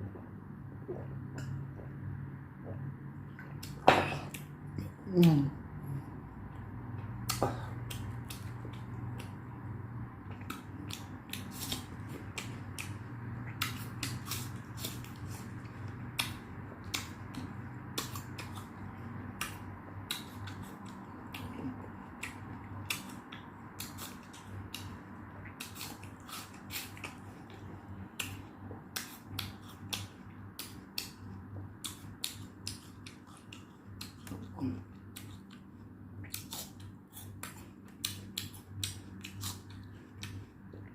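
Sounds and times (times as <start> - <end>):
steady low hum: 0.0 - 40.9
chewing clicks and crunches: 10.2 - 40.9.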